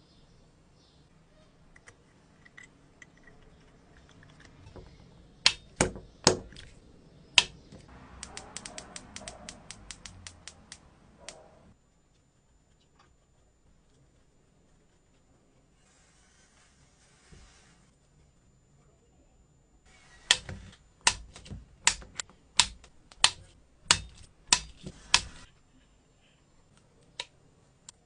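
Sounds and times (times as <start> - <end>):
mechanical clicks: 7.4 - 11.4.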